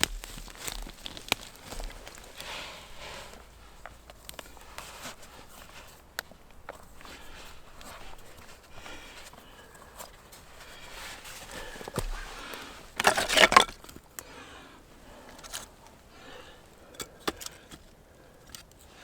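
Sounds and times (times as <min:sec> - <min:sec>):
rustling and light clicks: 0:00.0 - 0:14.3
loud crackling crunch: 0:00.0 - 0:14.4.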